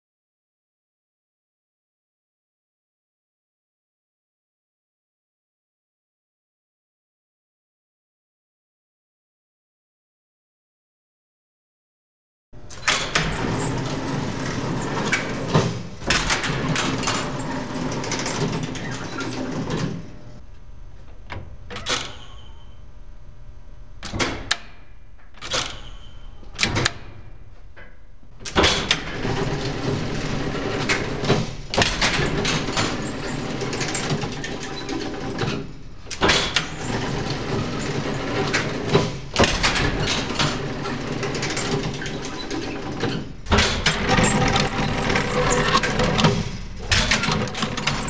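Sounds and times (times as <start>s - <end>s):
mechanical clatters: 12.7s - 20.4s, 24.0s - 48.0s
mechanical whirring with clicking: 28.4s - 48.0s.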